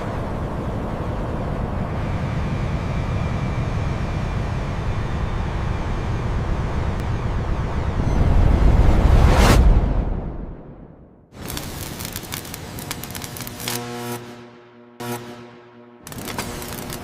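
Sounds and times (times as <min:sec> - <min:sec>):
airplane engines rumbling: 0:00.0 - 0:09.2.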